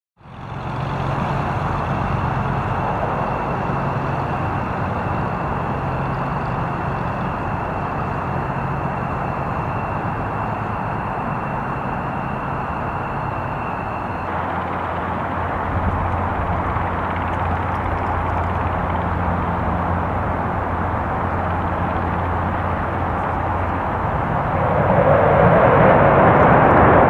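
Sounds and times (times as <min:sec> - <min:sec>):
high turbine whine: 0:00.2 - 0:27.0
jet engines rumbling hiss: 0:00.4 - 0:27.0.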